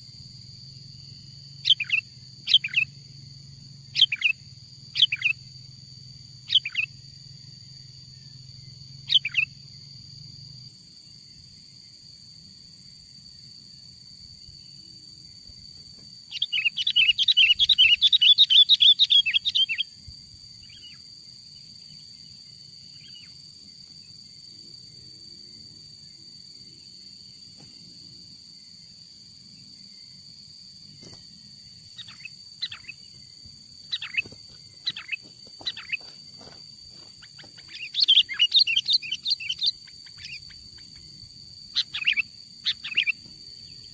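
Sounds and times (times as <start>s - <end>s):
bulbul calls: 1.6s - 2.9s, 3.9s - 5.4s, 6.4s - 7.0s, 9.0s - 9.6s, 16.3s - 19.9s, 31.9s - 33.2s, 33.9s - 41.1s, 41.7s - 43.9s.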